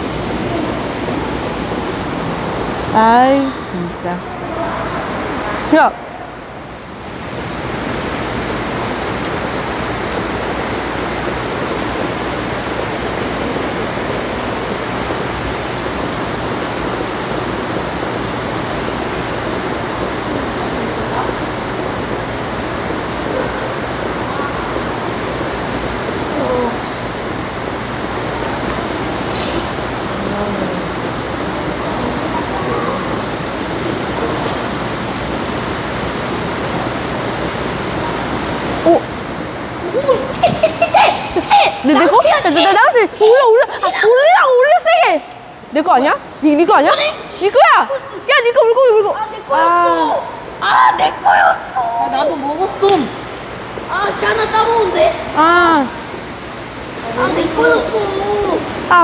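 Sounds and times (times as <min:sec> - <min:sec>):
flowing water rushing: 0:00.0 - 0:59.0
faint voices: 0:29.5 - 0:35.5.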